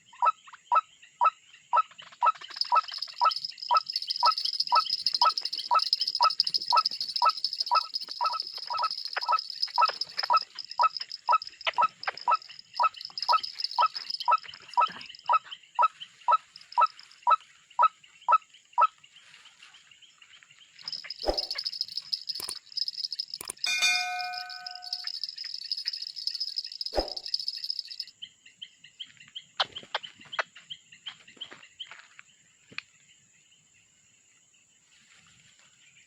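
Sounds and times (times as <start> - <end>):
sharp clicks: 2.4 - 14.9, 20.8 - 28.1.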